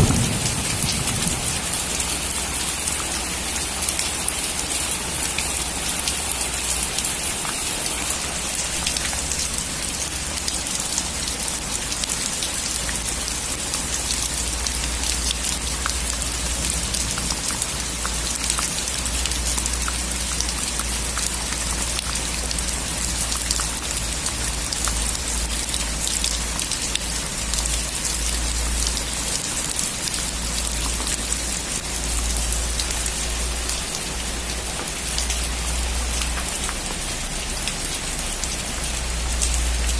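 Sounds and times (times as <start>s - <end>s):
low rumble: 0.0s - 2.6s
steady rain falling: 0.0s - 39.9s.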